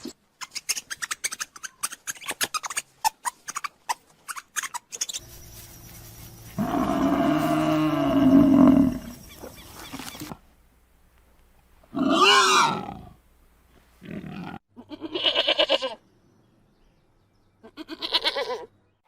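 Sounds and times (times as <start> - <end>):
large animal roaring: 6.6 - 9.2.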